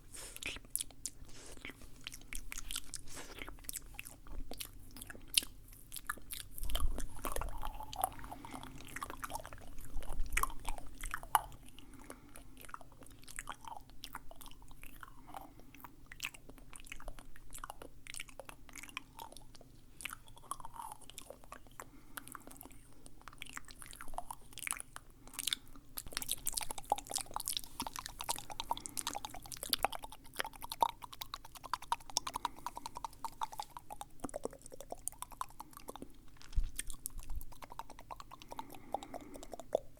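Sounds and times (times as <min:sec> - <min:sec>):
wet mouth clicks and smacks: 0:16.1 - 0:39.9.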